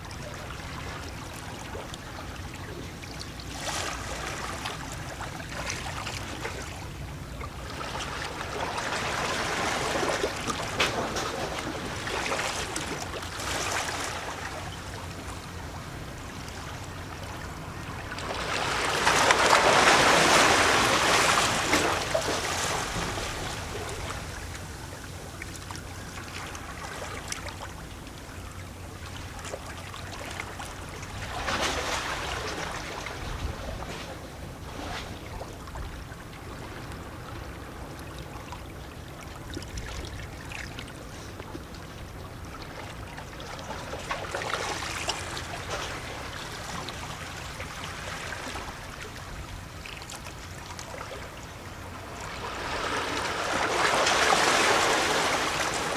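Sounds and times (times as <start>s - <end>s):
sea waves lapping against rocks: 0.1s - 28.2s, 29.0s - 38.5s, 39.2s - 55.9s
wave surging: 52.0s - 55.9s.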